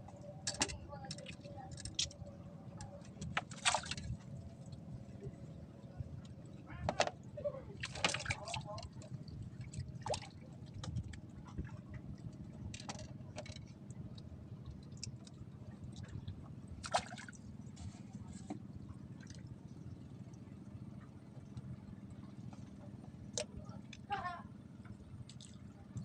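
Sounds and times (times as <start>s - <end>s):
steady low rumble: 0.0s - 26.0s
water lapping and sloshing: 0.0s - 26.0s
short sharp splashes: 3.5s - 4.0s, 16.8s - 17.3s.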